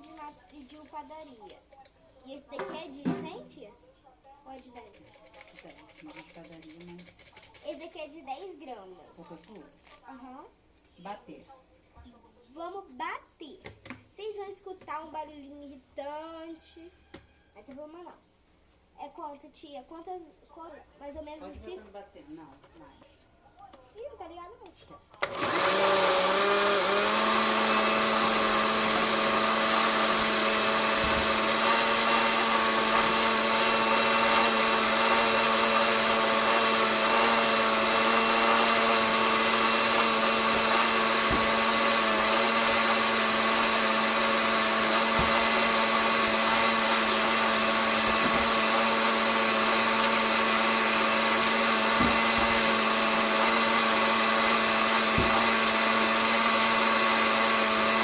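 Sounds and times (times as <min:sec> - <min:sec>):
kitchen blender running: 0:25.2 - 0:58.0.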